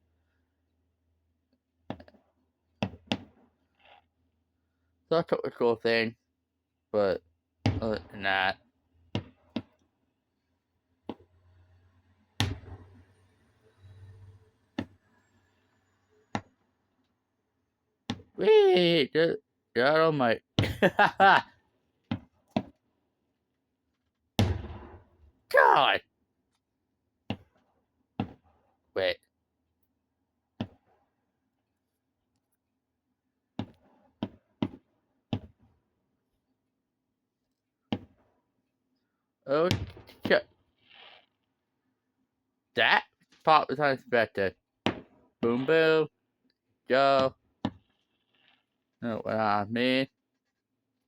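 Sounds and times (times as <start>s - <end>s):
fireworks bangs and rumbles: 24.4s - 25.1s.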